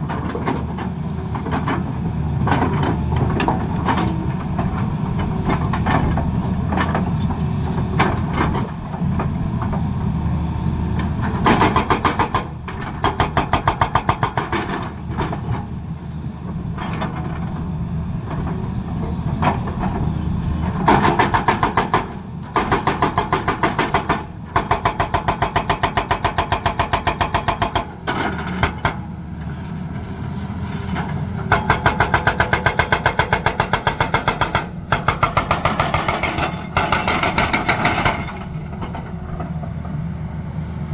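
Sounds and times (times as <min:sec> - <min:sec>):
excavator diesel engine running: 0:00.0 - 0:40.9
hydraulic breaker hammering: 0:31.5 - 0:38.6.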